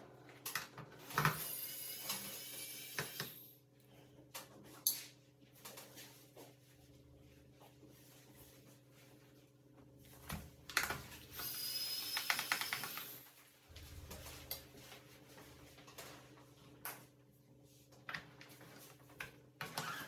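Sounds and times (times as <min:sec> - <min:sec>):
steady low hum: 0:13.6 - 0:15.8.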